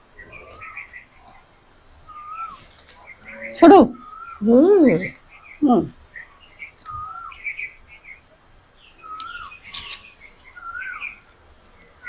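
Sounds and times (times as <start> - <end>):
leaves rustling: 0.0 - 12.0
bird whistling notes: 2.0 - 5.2
soft high bird chirps: 2.0 - 12.0.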